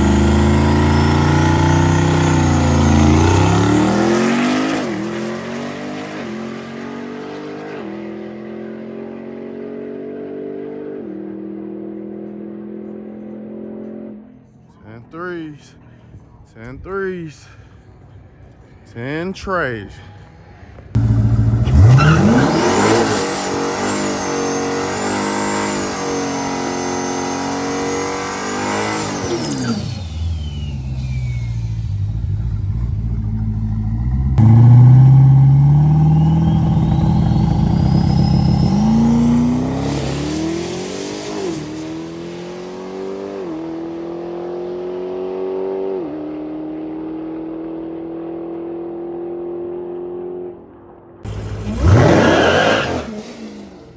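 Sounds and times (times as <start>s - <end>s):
high supercharger whine: 0.0s - 5.6s, 21.0s - 43.8s, 51.3s - 53.9s
drag car engine at full throttle: 0.0s - 9.5s, 21.0s - 48.7s, 51.3s - 53.9s.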